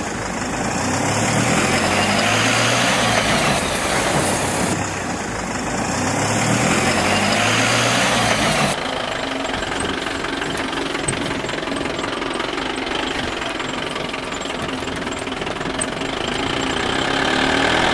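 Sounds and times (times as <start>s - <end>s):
tractor engine revving: 6.5s - 17.9s.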